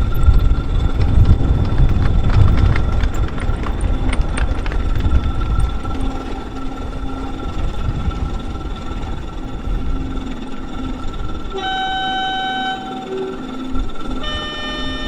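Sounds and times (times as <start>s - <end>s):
wind rumble on microphone: 0.0s - 12.0s
model locomotive motor whine: 0.0s - 15.0s
train horn: 10.0s - 15.0s.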